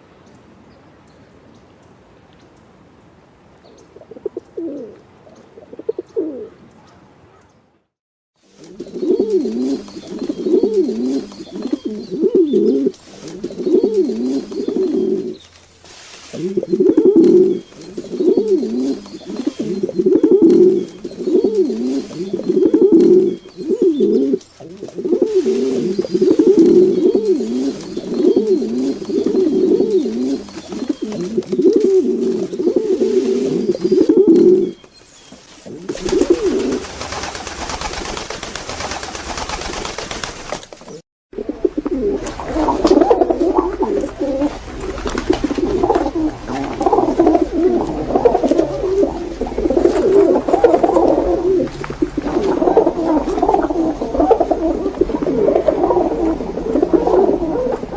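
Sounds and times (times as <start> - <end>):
pigeons cooing: 4.0 - 7.4, 8.5 - 40.2, 40.8 - 57.9
steady hiss: 12.7 - 17.1, 24.1 - 34.1.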